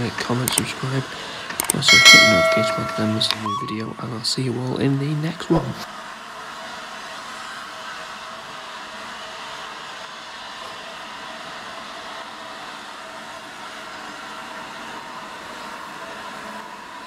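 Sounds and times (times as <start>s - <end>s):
steam locomotive hissing rush: 0.0s - 2.8s, 5.2s - 17.0s.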